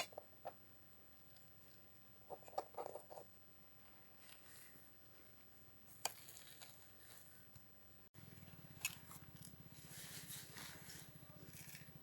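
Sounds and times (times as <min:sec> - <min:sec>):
low steady hum: 0:00.0 - 0:12.0
small objects clicking and rustling: 0:06.0 - 0:07.3, 0:08.8 - 0:12.0.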